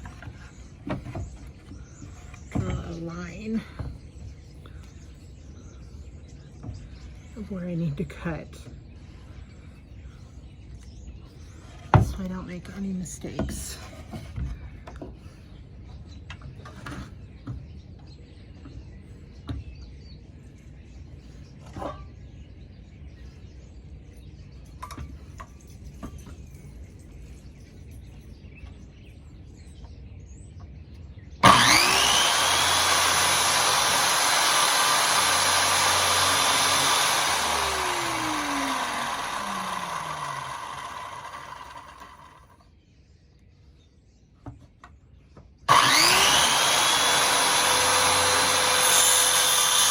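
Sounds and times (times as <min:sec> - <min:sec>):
saw motor winding down whine: 0:31.4 - 0:42.5, 0:45.7 - 0:49.9
electric power saw running: 0:31.4 - 0:42.6, 0:45.7 - 0:49.9.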